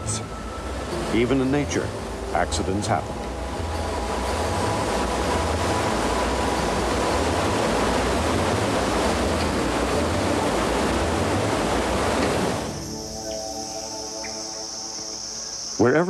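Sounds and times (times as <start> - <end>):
waterfall roar: 0.0 - 15.8
soft sustained tones: 0.0 - 16.0
insect chirring: 12.7 - 16.0.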